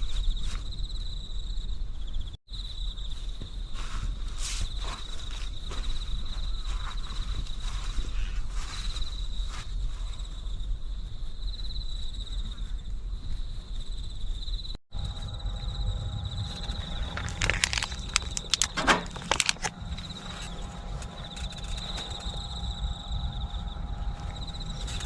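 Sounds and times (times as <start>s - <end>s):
insects trilling: 4.4s - 25.0s
wind rumble on microphone: 5.9s - 25.0s
clicks and rustles: 17.0s - 20.1s.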